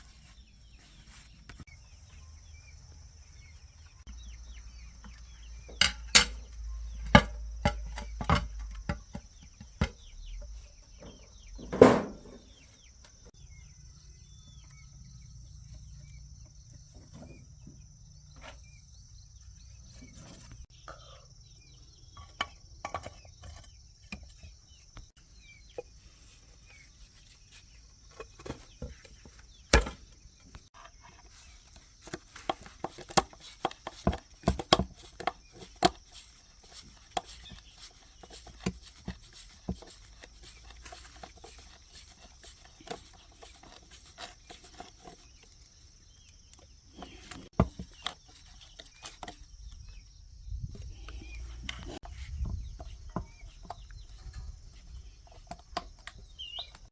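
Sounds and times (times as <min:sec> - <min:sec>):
tools and parts clattering: 0:05.1 - 0:13.3, 0:25.7 - 0:49.9.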